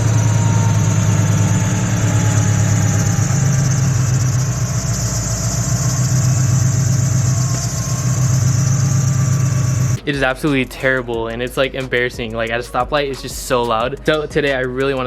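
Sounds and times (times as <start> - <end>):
car engine idling loudly: 0.0 - 10.0
faint belt squeal: 0.0 - 10.0.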